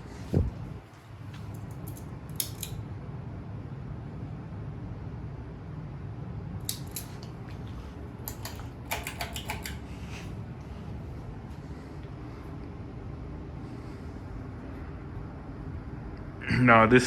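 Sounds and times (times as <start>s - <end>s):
ceiling fan humming: 0.0s - 17.0s
sharp clicks: 6.7s - 7.3s, 8.2s - 9.8s.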